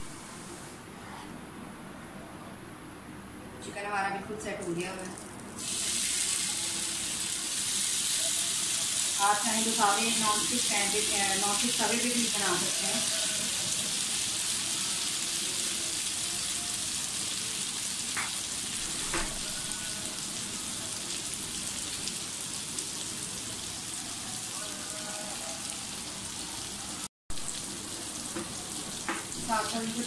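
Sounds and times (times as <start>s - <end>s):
chicken sizzling on grill pan: 5.6s - 26.7s.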